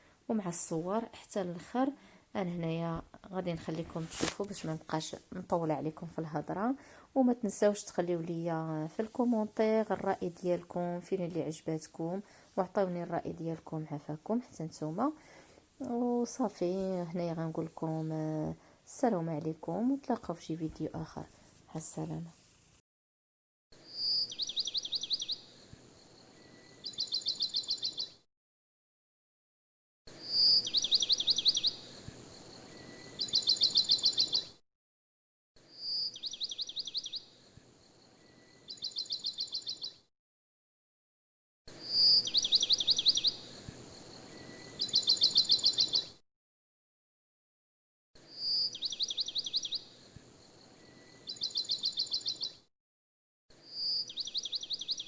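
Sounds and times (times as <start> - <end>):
bird chirping trill: 23.9 - 28.2, 30.2 - 34.6, 35.7 - 40.0, 41.8 - 43.5, 44.2 - 46.2, 48.4 - 50.0, 50.6 - 52.6, 53.7 - 55.0.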